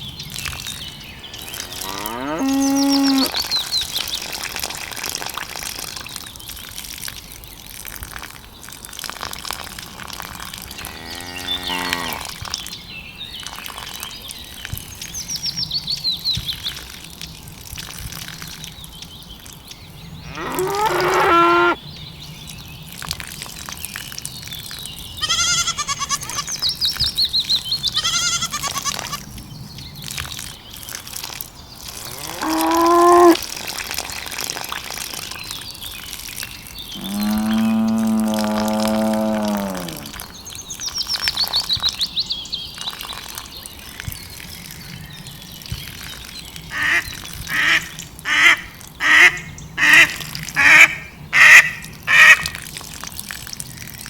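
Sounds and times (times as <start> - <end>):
cattle mooing: 1.5 - 3.3, 10.8 - 12.3, 20.3 - 21.8, 32.0 - 33.4, 37.0 - 40.2.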